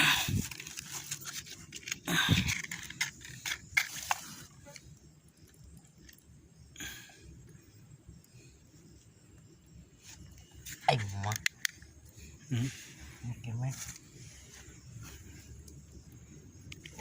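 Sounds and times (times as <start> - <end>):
twigs crackling while handled: 0.3 - 4.6.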